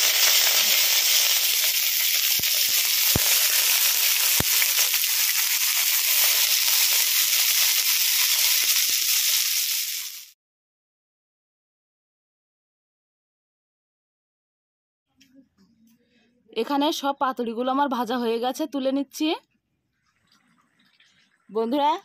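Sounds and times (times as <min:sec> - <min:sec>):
parcels sizzling in hot oil: 0:00.0 - 0:10.4.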